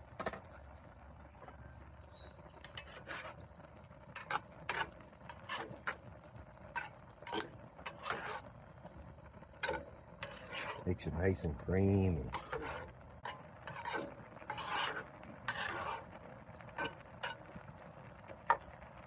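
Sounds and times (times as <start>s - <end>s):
utensil scraping a pan: 2.5s - 3.5s, 4.1s - 8.6s, 9.5s - 17.6s.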